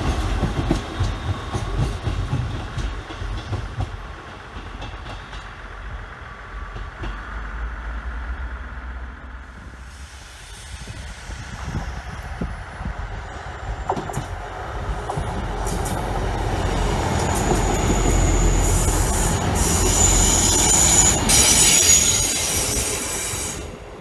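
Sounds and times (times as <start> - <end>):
diesel train engine and wheels rumbling: 0.0 - 24.0
high wheel squeal: 16.6 - 23.8.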